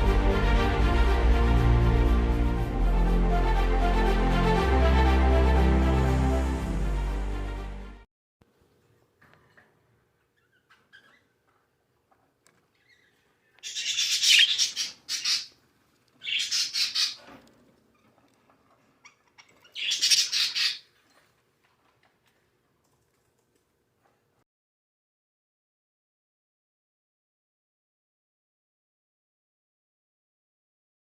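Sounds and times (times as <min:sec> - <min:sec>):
budgerigar squawking: 0:13.6 - 0:15.6, 0:16.2 - 0:17.2, 0:19.1 - 0:20.9.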